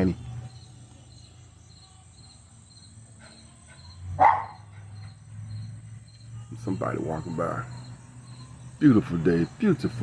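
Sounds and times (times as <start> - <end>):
insects chirping: 0.0 - 10.0
dog barking: 3.2 - 5.2.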